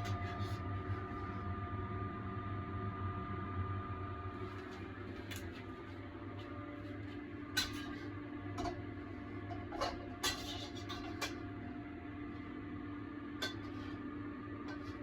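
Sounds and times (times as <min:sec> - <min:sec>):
extractor fan humming: 0:00.0 - 0:15.0
utensils clinking on cookware: 0:07.6 - 0:08.0, 0:09.5 - 0:11.4, 0:13.4 - 0:13.8.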